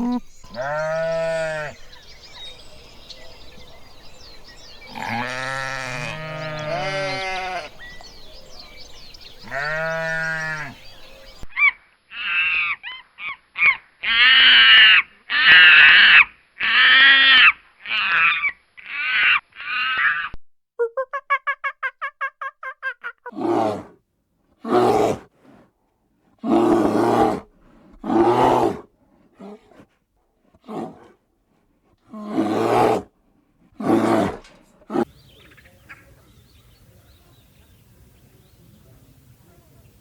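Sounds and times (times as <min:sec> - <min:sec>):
harsh roaring animal calls: 0:23.3 - 0:24.0, 0:24.6 - 0:25.6, 0:26.4 - 0:29.8, 0:30.5 - 0:31.2, 0:32.0 - 0:35.1
rapid pitched animal pulses: 0:24.6 - 0:35.1.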